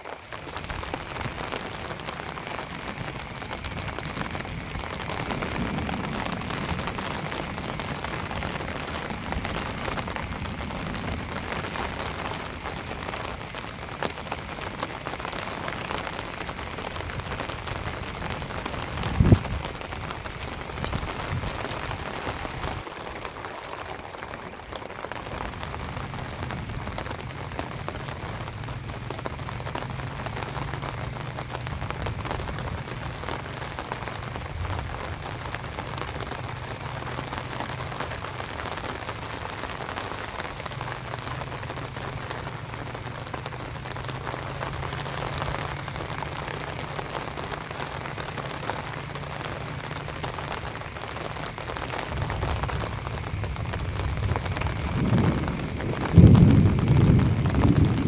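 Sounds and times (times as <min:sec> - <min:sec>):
rain falling on water: 0:00.0 - 0:58.0.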